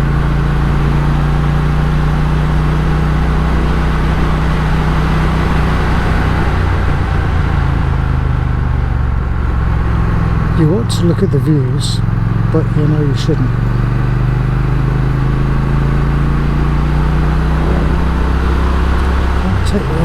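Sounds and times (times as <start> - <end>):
motorcycle engine pulling: 11.8 - 20.0
wind noise on microphone: 16.5 - 19.5.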